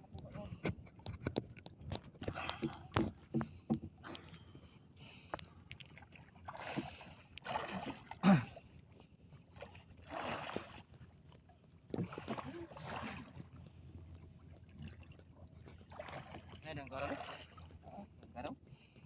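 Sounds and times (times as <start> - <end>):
water splashing: 5.7 - 8.6, 9.6 - 10.9, 12.0 - 13.6, 14.4 - 17.8.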